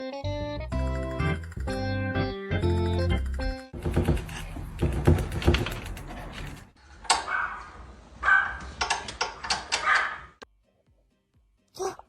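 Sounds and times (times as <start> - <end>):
clicking and knocking: 3.3 - 7.2, 8.8 - 10.1.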